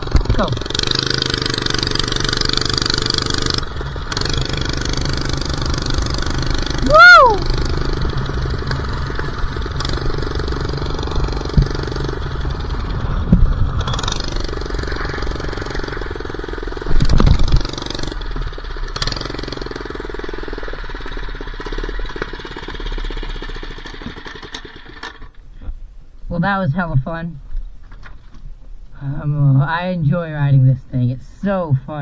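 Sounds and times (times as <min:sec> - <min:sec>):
loud rattling knock: 0:00.0 - 0:20.1
small engine revving: 0:00.0 - 0:25.4
wind noise on microphone: 0:16.9 - 0:17.9.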